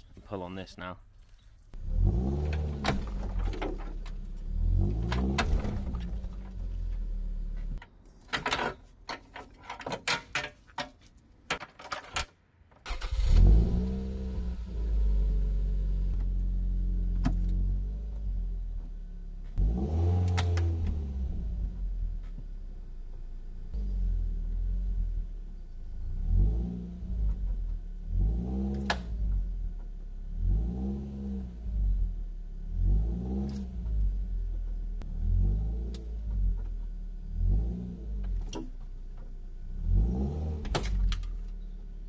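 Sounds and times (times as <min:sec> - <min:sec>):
car engine revving: 0:01.8 - 0:07.8, 0:12.9 - 0:22.3, 0:23.6 - 0:38.8, 0:39.6 - 0:42.0
steel chain clinking and rattling: 0:08.2 - 0:12.3.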